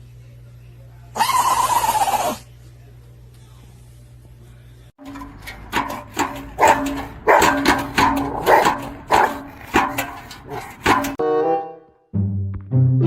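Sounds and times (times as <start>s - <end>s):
dog barking: 6.6s - 9.5s.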